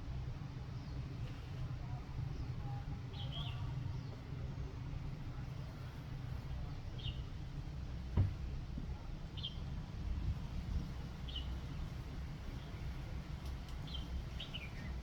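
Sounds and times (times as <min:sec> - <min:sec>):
brief knock: 0:08.2 - 0:08.4.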